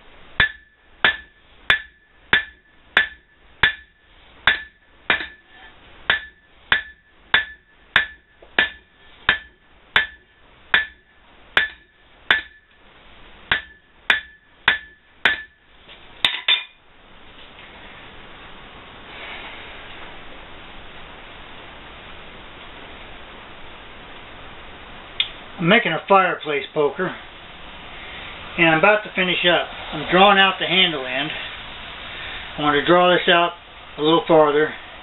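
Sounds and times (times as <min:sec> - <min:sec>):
steady hiss: 0:00.0 - 0:35.0
hammer striking steel on anvil: 0:00.4 - 0:12.8, 0:13.5 - 0:15.6, 0:16.2 - 0:16.8.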